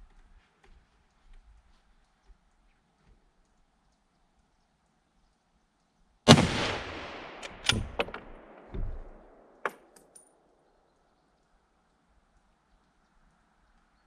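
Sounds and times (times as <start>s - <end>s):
dull thud: 6.3s - 9.8s
rifle shot with echo: 6.3s - 10.1s
sharp metallic clicks: 6.3s - 10.3s.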